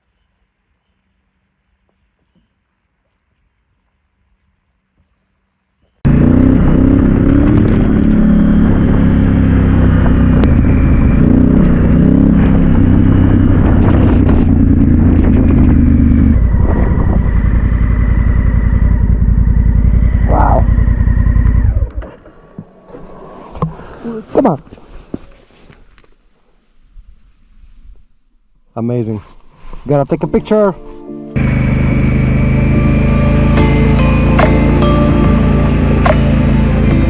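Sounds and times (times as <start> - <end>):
motorcycle engine rumbling: 6.0 - 24.1, 31.3 - 37.0.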